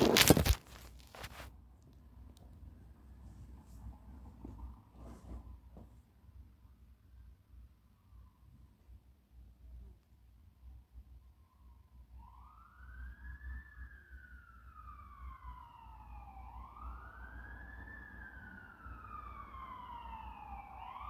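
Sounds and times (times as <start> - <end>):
fire truck siren wailing: 12.2 - 21.0.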